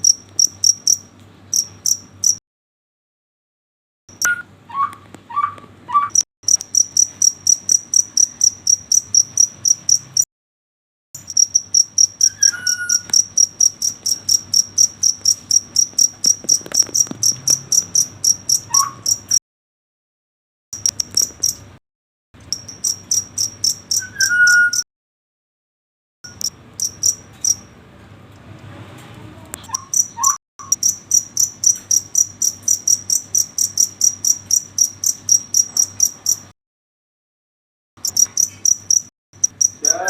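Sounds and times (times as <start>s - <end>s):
cricket chirping: 0.0s - 2.4s, 6.5s - 10.2s, 11.2s - 19.4s, 20.8s - 21.6s, 22.4s - 24.8s, 26.3s - 27.7s, 29.8s - 36.5s, 38.0s - 40.0s
short whistled chirps: 12.3s - 13.1s, 24.0s - 24.8s.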